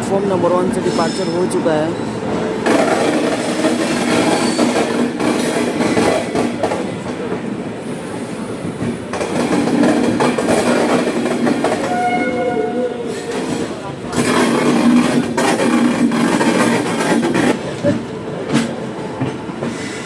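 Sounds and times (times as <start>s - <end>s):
train running rumble: 0.0s - 20.0s
train wheels clattering over rail joints: 2.6s - 7.5s, 8.8s - 12.1s, 13.1s - 20.0s.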